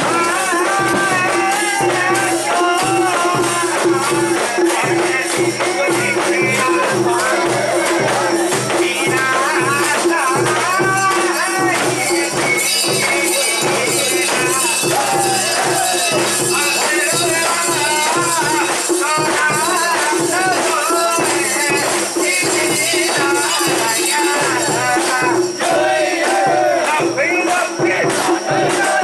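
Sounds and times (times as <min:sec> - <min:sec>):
festival music: 0:00.0 - 0:29.0
many voices: 0:00.0 - 0:29.0
shaking jingling rattle: 0:09.9 - 0:25.6.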